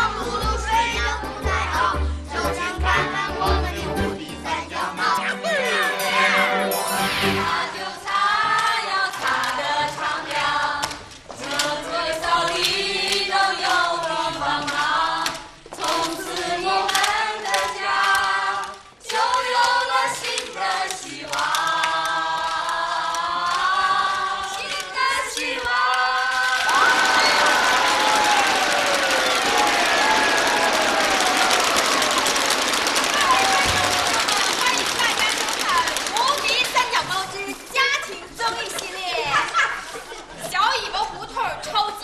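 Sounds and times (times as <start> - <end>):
group of voices singing: 0.0 - 32.1.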